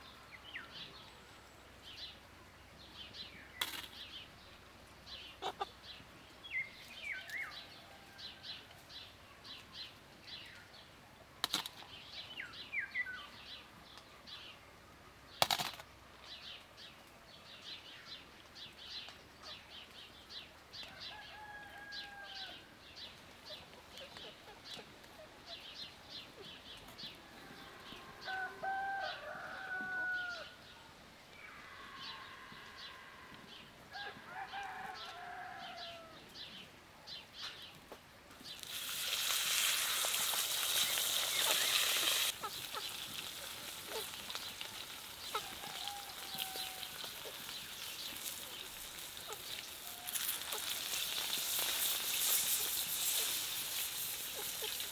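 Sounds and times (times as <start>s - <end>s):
small birds chirping: 35.0s - 54.9s.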